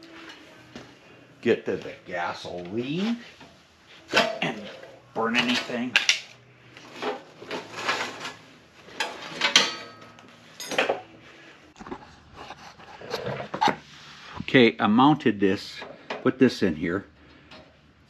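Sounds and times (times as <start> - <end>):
metal parts and tools clattering: 4.1 - 6.3, 6.9 - 11.1.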